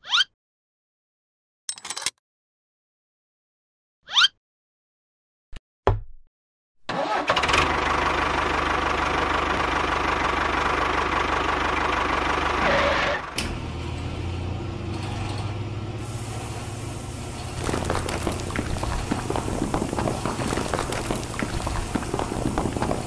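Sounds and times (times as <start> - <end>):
engine running steadily: 7.4 - 23.0.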